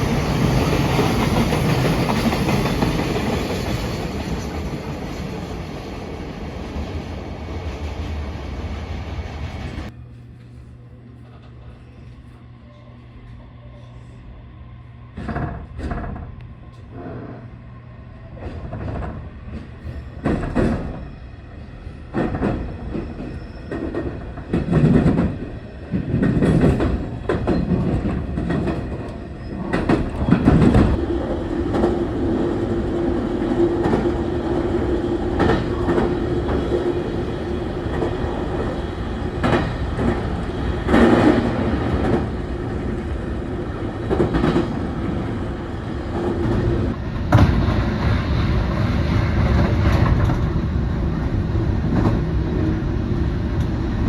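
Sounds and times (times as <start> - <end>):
train wheels clacking on rails: 0.0 - 8.8, 18.4 - 21.1, 21.9 - 50.7.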